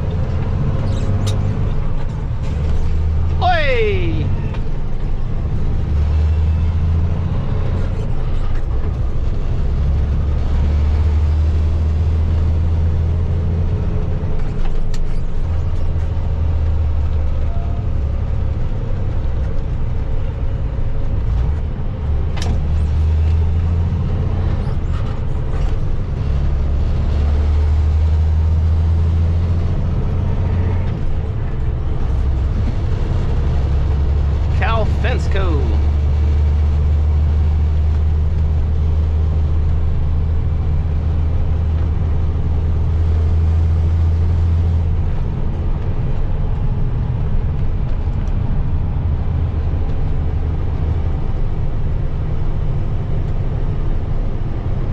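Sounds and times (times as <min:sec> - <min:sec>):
vehicle engine and road noise: 0:00.0 - 0:54.9.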